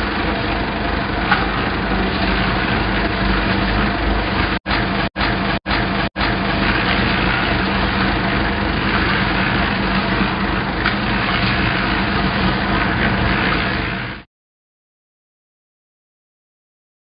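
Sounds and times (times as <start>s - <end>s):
combine harvester engine running: 0.0s - 14.2s.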